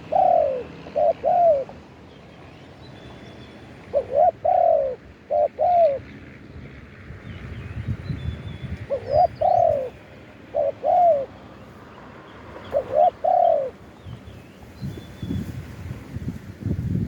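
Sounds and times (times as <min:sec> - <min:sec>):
dove cooing: 0:00.0 - 0:01.9, 0:03.8 - 0:06.1, 0:08.9 - 0:11.4, 0:12.6 - 0:13.8.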